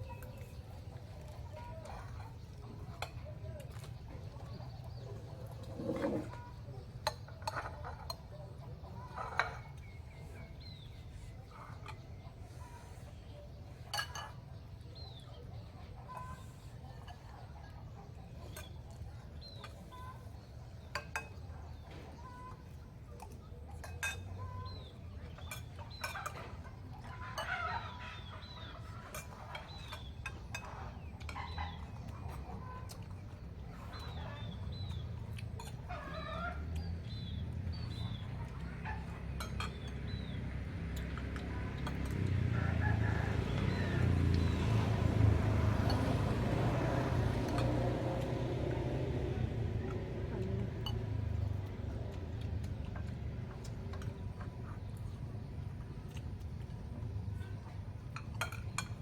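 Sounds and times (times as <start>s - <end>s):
chickens clucking: 19.5s - 55.0s.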